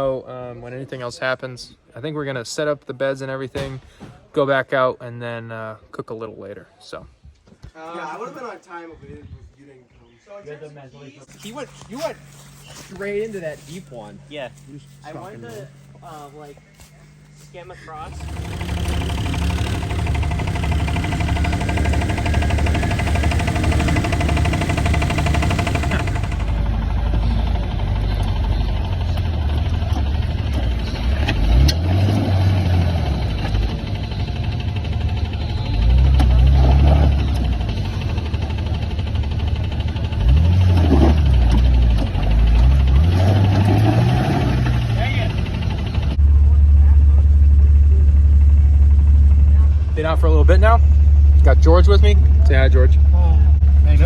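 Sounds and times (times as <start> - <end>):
vehicle engine running: 11.3 - 54.0.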